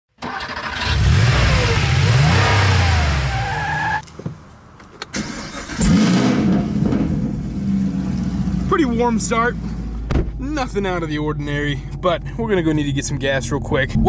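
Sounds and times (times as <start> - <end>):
engine starting and idling: 0.2 - 1.7, 5.1 - 8.3
car engine revving: 0.6 - 3.6, 5.2 - 10.8.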